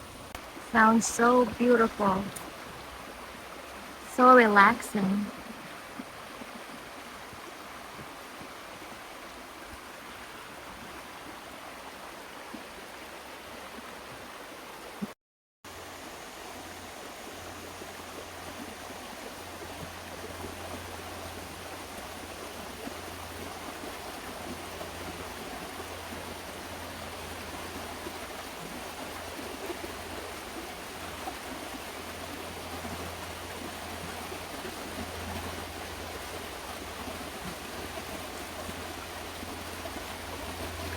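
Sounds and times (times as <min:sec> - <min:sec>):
river water rushing: 0:00.0 - 0:15.0, 0:15.7 - 0:40.9
low steady hum: 0:34.9 - 0:40.9.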